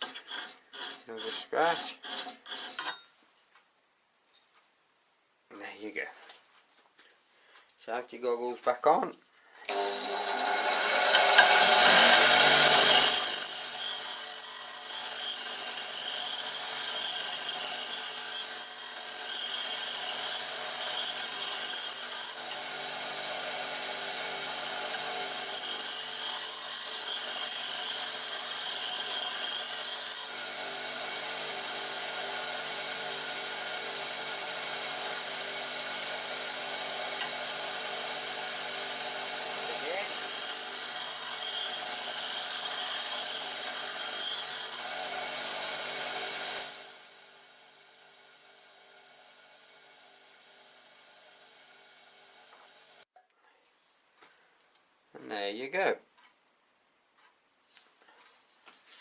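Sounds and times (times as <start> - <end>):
bench grinder motor hum: 9.7 - 53.0.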